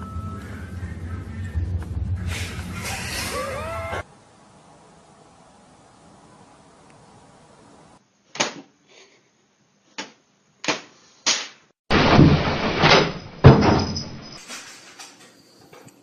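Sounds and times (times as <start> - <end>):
heavy bang: 1.1 - 3.2.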